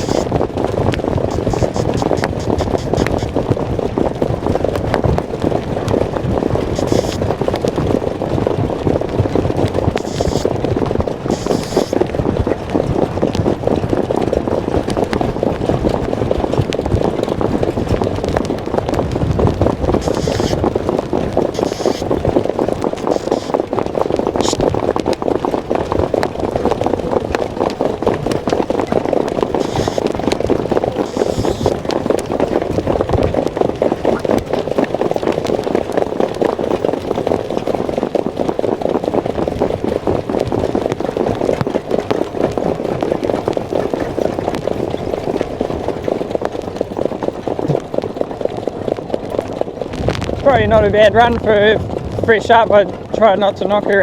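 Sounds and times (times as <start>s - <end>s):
hooves and wheels clattering: 0.0s - 54.0s
air rushing over microphone: 19.2s - 20.6s, 50.0s - 54.0s.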